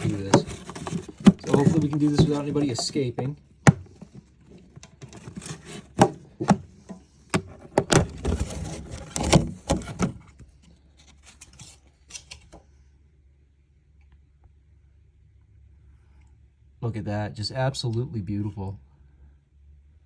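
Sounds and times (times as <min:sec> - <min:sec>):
hard objects knocking: 0:00.0 - 0:08.2
rubbing and scraping: 0:00.0 - 0:12.3.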